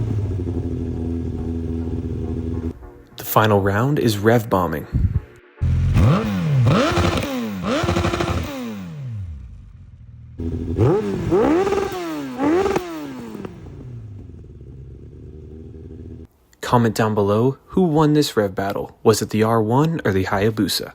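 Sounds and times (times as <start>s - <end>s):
motorcycle engine idling: 0.0s - 3.0s, 5.0s - 16.3s
motorcycle engine revving: 0.0s - 3.1s, 4.9s - 16.3s.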